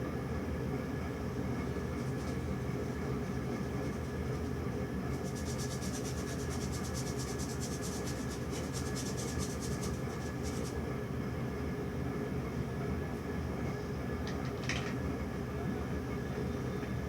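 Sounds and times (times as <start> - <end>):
paintbrush scrubbing on canvas: 3.6 - 10.8.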